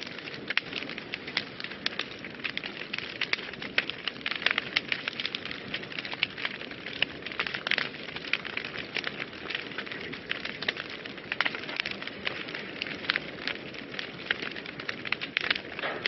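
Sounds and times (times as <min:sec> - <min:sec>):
fire crackling in a fireplace: 0:00.0 - 0:16.0.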